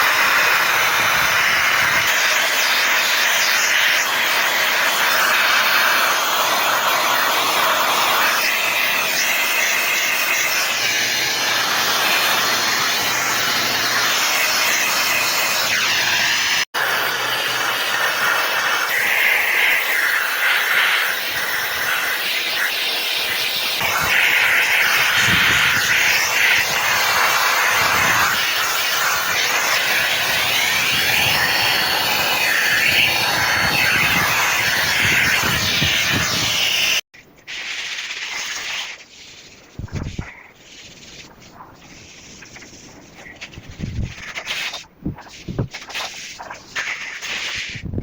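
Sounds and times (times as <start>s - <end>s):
water spraying hard on surface: 0.0s - 48.0s.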